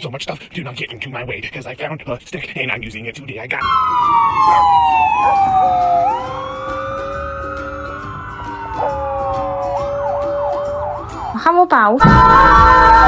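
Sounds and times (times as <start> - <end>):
dogs howling: 3.6 - 11.4, 12.1 - 13.0.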